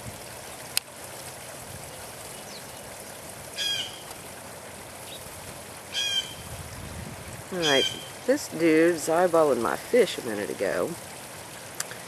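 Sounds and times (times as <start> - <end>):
running water trickling: 0.0 - 12.0
harsh bird call: 7.6 - 8.2.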